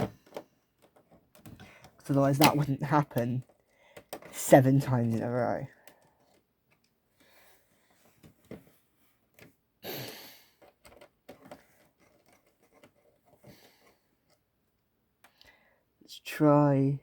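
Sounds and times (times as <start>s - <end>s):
plastic and metal parts clicking: 0.0s - 7.4s, 10.6s - 14.4s
person sighing: 9.8s - 10.6s.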